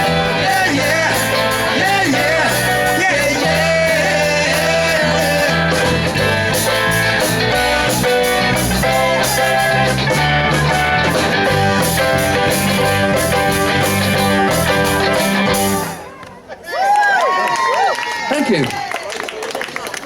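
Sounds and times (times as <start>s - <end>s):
steady drum beat: 0.0s - 16.0s
electric guitar strumming: 0.0s - 16.1s
bass guitar: 0.0s - 16.2s.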